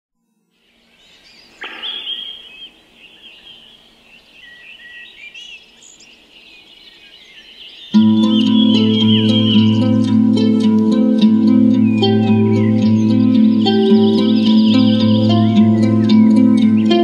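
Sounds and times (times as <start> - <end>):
songbirds chirping and warbling: 0.3 - 17.0
loud plucked string music: 8.0 - 17.0.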